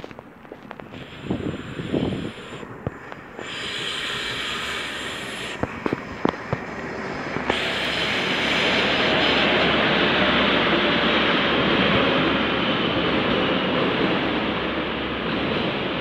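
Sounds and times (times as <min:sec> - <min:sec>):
diesel train engine and wheel noise: 0:00.0 - 0:16.0.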